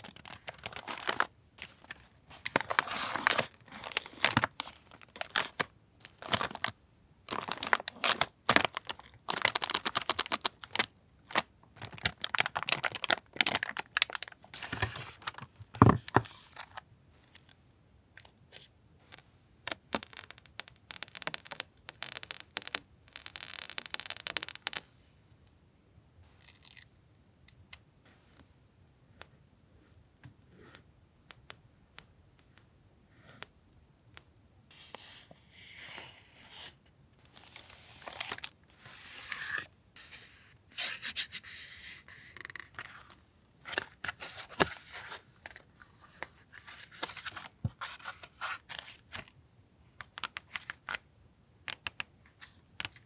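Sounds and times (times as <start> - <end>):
packaging crinkling and rustling: 0.0 - 16.8, 37.3 - 38.6, 42.4 - 49.3.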